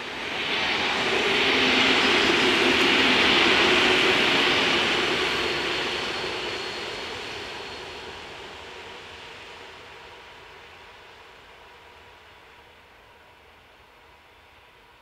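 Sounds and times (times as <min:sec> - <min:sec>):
train wheel and rail noise: 0:00.0 - 0:15.0.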